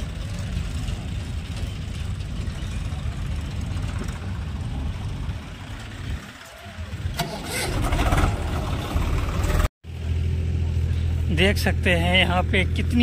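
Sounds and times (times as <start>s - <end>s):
tractor engines idling: 0.0s - 13.0s.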